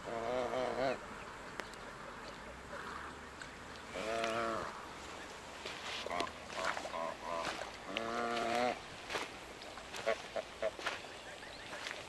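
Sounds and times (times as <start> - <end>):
geese honking: 3.8 - 8.8, 9.8 - 12.0.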